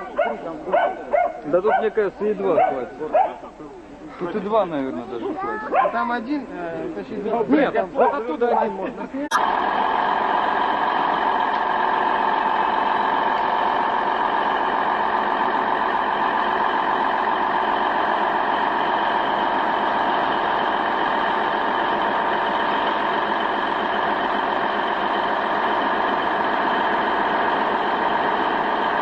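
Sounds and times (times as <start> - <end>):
steady whine: 9.3 - 29.0
heavy vehicle engine running: 9.4 - 29.0.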